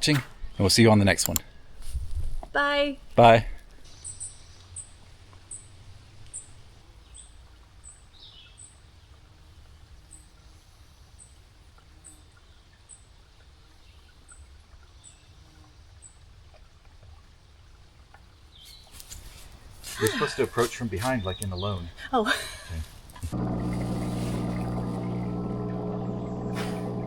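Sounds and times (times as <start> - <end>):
faint low outdoor rumble: 20.1 - 27.0.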